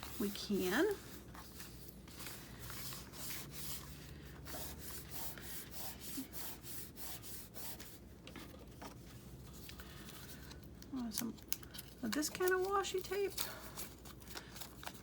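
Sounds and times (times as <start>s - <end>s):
paper being rubbed: 0.0s - 8.0s.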